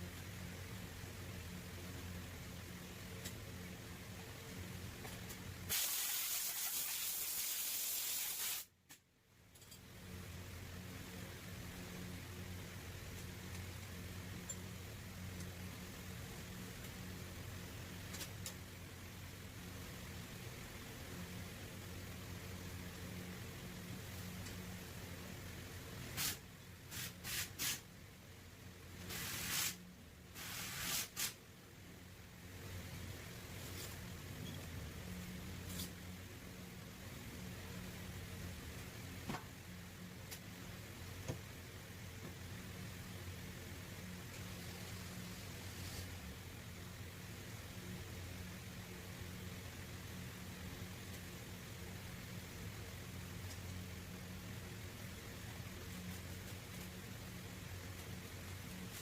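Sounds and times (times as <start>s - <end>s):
low machine hum: 0.0s - 5.7s, 9.1s - 26.9s
steady low hum: 0.0s - 5.7s, 8.7s - 59.0s
air gun hissing bursts: 5.7s - 8.7s, 26.1s - 27.8s, 29.1s - 29.8s, 30.4s - 31.4s
pneumatic air gun hissing: 5.7s - 8.7s.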